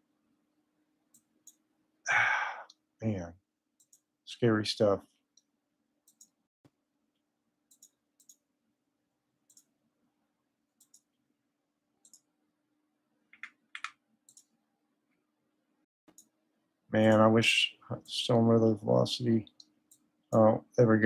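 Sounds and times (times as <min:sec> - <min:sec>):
faint steady hum: 0:00.0 - 0:21.0
computer mouse clicks: 0:01.1 - 0:01.6, 0:03.8 - 0:04.1, 0:05.4 - 0:06.4, 0:07.7 - 0:08.4, 0:09.5 - 0:09.7, 0:10.8 - 0:11.1, 0:12.0 - 0:12.3, 0:13.3 - 0:14.6, 0:16.1 - 0:16.3, 0:19.5 - 0:20.1.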